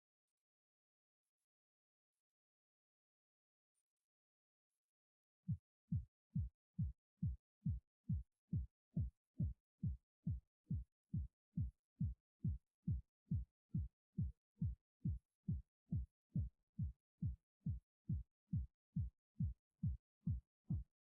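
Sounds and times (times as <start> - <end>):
deep kick drum beating: 5.5 - 20.9.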